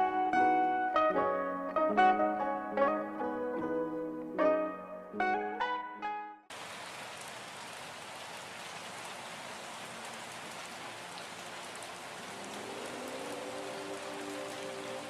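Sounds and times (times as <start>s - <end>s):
soft music with held notes: 0.0s - 6.5s, 13.0s - 15.0s
steady rain falling: 6.5s - 15.0s.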